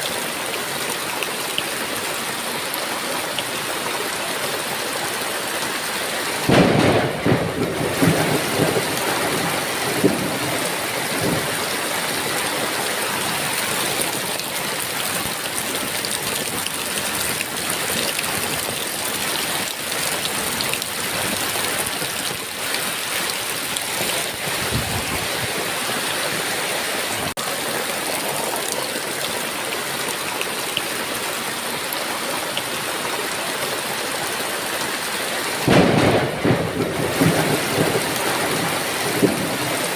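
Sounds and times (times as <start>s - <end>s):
heavy rain: 0.0s - 39.9s
thunder rumbling: 6.4s - 12.2s, 23.9s - 26.1s, 35.6s - 39.9s.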